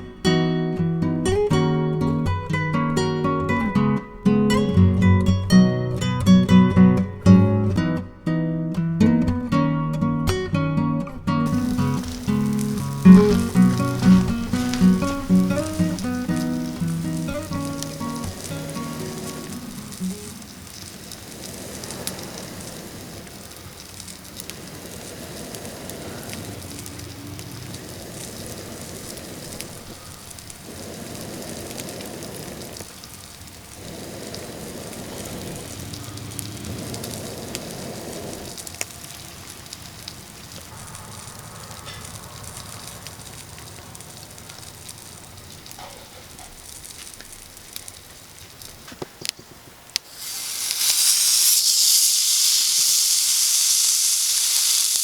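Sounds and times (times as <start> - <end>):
wood fire crackling and hissing: 0.0 - 55.0
fire pops: 11.4 - 55.0.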